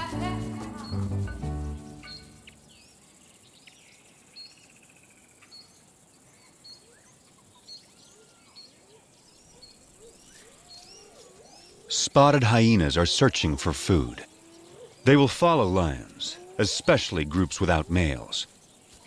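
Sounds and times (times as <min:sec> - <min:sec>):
whistled bird notes: 0:00.8 - 0:03.0
high bird chirps: 0:00.8 - 0:12.3.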